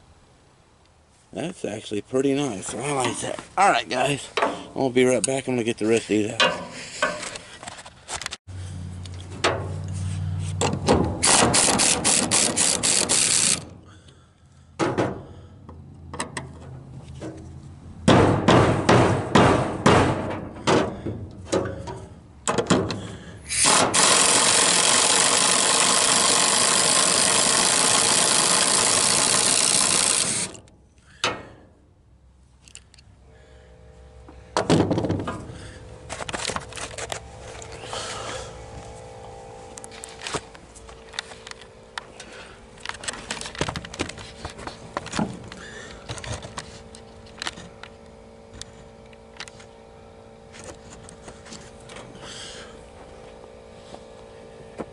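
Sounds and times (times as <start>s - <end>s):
ratchet wrench clicking: 11.2s - 13.7s, 23.5s - 30.6s.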